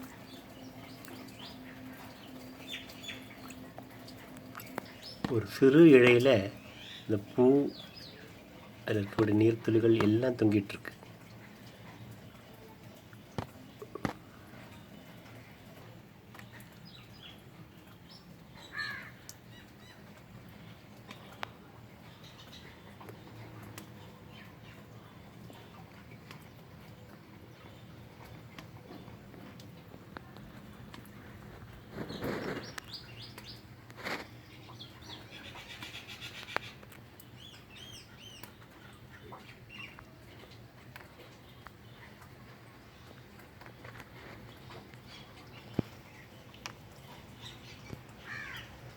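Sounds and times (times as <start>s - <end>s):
faint steady background noise: 0.0s - 48.9s
small birds chirping: 0.0s - 48.9s
crow cawing: 18.7s - 19.2s, 48.2s - 48.7s.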